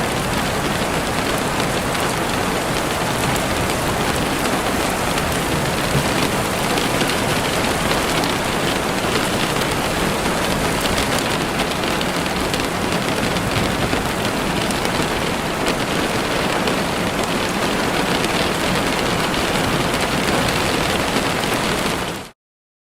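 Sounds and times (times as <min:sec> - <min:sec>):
heavy rain on a window: 0:00.0 - 0:22.4.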